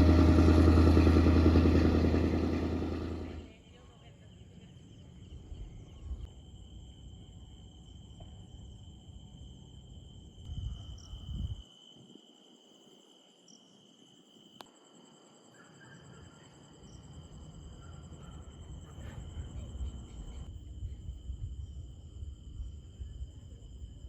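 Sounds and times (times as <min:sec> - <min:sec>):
low rumble: 0:00.0 - 0:03.5.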